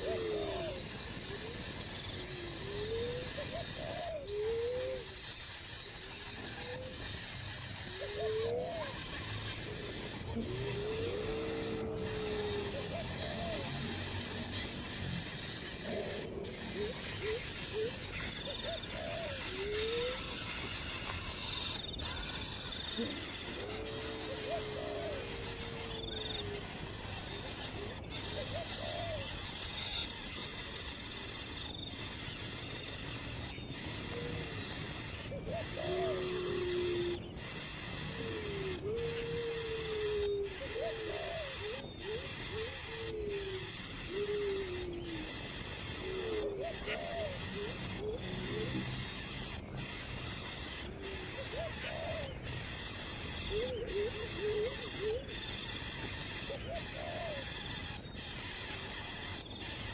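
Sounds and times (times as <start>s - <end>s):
bird calls sliding in pitch: 0.0s - 29.3s
steady high hiss: 0.0s - 59.9s.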